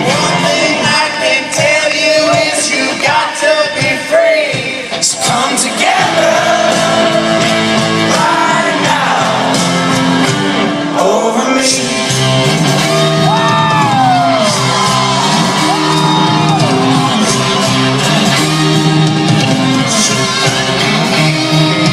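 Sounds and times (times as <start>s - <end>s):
voices singing together: 0.0s - 10.2s
live rock band: 0.0s - 21.9s
whoops and shouts: 13.1s - 17.8s.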